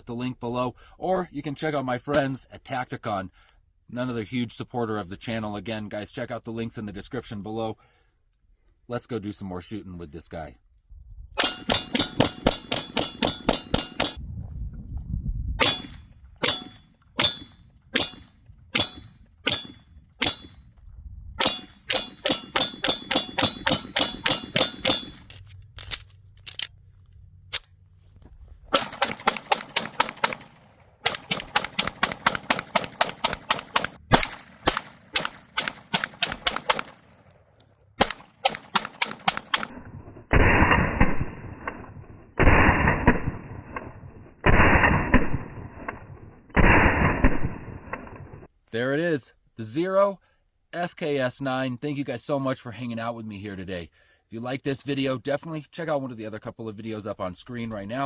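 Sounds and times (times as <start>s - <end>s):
pistol gunshots: 11.4s - 14.2s, 15.6s - 20.7s, 21.4s - 25.2s, 28.7s - 37.4s, 38.0s - 39.7s, 40.3s - 41.6s, 42.4s - 46.0s, 46.6s - 47.9s.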